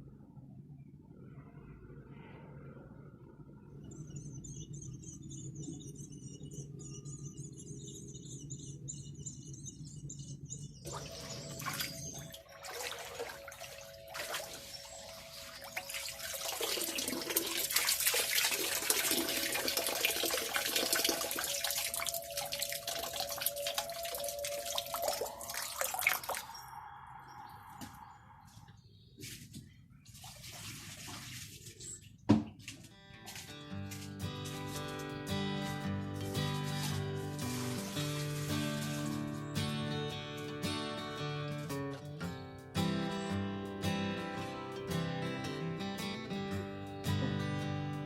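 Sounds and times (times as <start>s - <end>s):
running water splashing: 10.9s - 26.5s, 30.1s - 40.5s.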